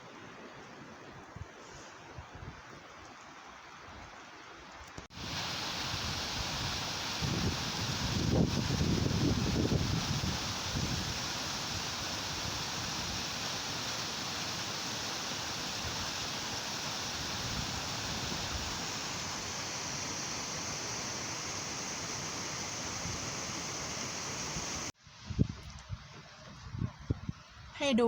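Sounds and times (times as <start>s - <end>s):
wind and rain hiss: 0.0s - 28.0s
wind buffeting microphone: 5.3s - 13.4s.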